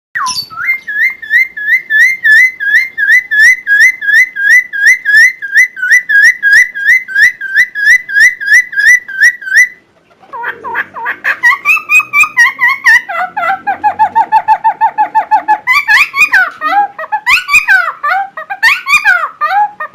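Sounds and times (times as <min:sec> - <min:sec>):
songbird whistling swooping note: 0:00.2 - 0:01.8.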